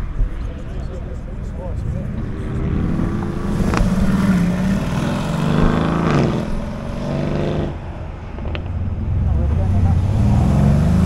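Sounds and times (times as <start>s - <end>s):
wind rumble on microphone: 0.0s - 11.0s
sports car engine accelerating: 0.8s - 11.0s.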